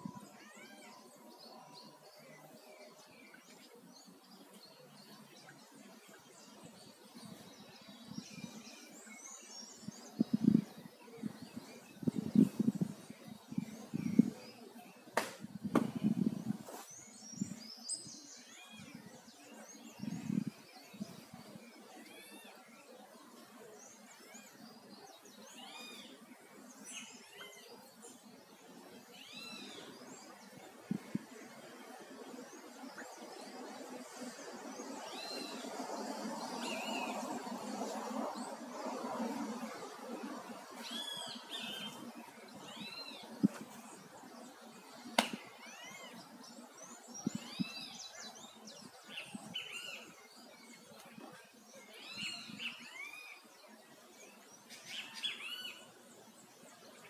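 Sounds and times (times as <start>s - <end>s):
small birds chirping: 0.0s - 57.0s
sharp click: 45.2s - 45.4s.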